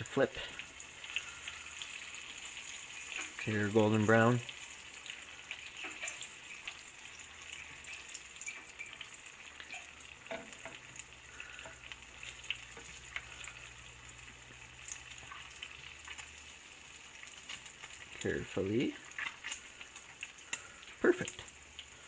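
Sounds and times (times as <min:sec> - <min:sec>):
frying in hot oil sizzling: 0:00.0 - 0:22.0
utensils scraping against pan: 0:02.9 - 0:03.4, 0:05.5 - 0:06.8, 0:19.0 - 0:20.6.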